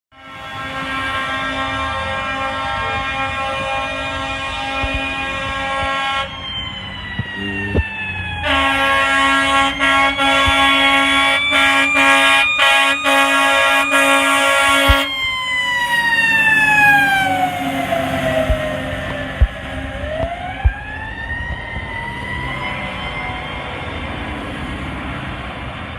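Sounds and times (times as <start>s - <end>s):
air horn blasts: 0.1s - 6.4s, 7.3s - 15.2s
mechanical siren wailing: 0.2s - 25.9s.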